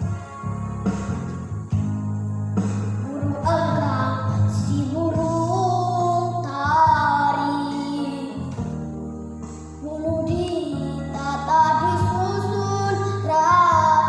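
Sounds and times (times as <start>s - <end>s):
instrumental backing track: 0.0s - 14.0s
girl singing sliding notes: 2.9s - 14.0s.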